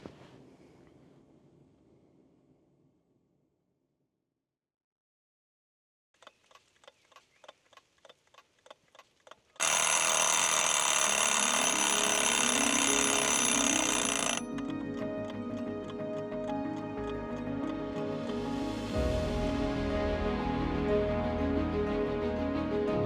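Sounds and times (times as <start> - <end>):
alarm clock ringing: 9.6 - 14.5
clock ticking: 9.6 - 14.6
music with ticking beat: 11.2 - 18.6.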